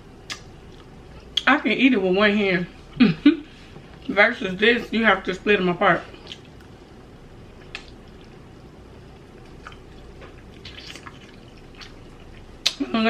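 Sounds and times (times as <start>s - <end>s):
chewing and mouth smacks: 0.2s - 1.5s, 6.1s - 12.8s.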